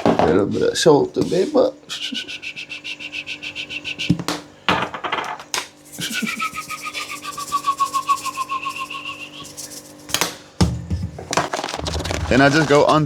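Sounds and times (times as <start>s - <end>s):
rustling bursts: 11.4s - 13.0s.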